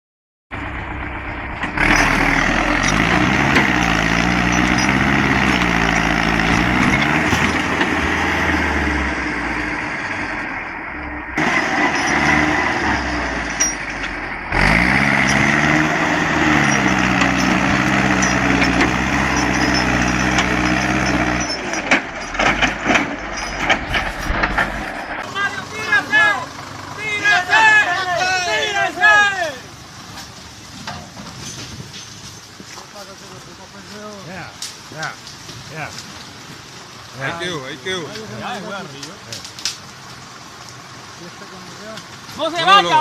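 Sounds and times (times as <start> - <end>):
heavy vehicle engine revving: 0.5 - 28.1
knocks and clatters: 1.6 - 8.5, 15.2 - 25.2, 30.1 - 32.6.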